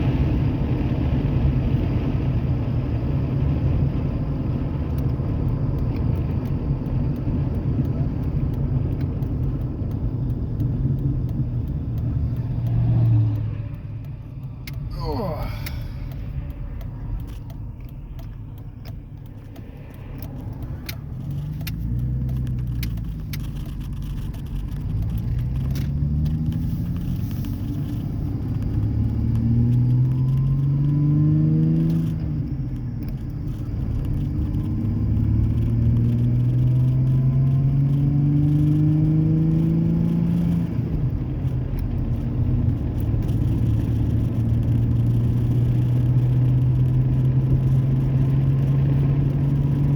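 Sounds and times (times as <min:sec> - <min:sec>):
truck engine accelerating: 0:00.0 - 0:49.9.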